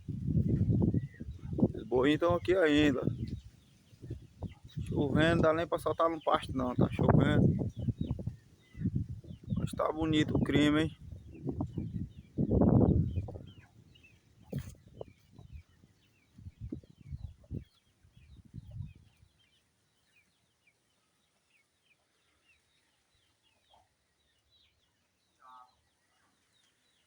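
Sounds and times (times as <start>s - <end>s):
microphone handling rumbles: 6.6s - 13.6s, 14.4s - 15.6s
small bird chirps: 10.4s - 27.0s.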